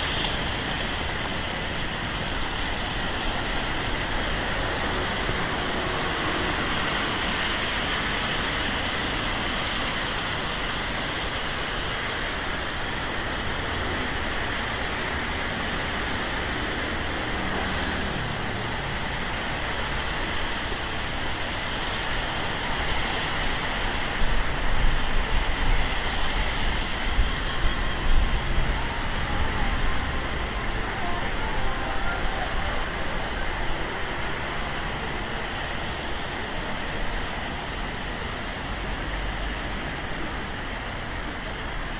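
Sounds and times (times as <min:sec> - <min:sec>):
rain falling on street: 0:00.0 - 0:41.9
traffic: 0:00.0 - 0:41.9.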